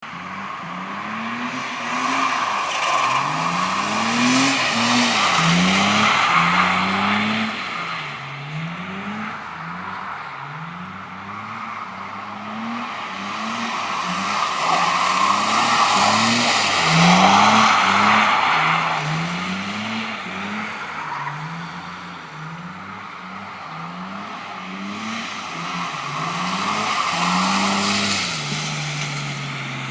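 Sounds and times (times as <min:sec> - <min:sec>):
car engine revving: 0:00.0 - 0:29.9
tyres hissing on wet tarmac: 0:00.4 - 0:08.3, 0:12.9 - 0:22.5, 0:23.7 - 0:29.9.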